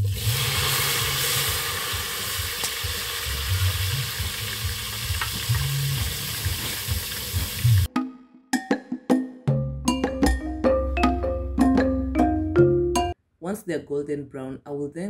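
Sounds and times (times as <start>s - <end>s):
vegetables sizzling in a pan: 0.0s - 7.9s.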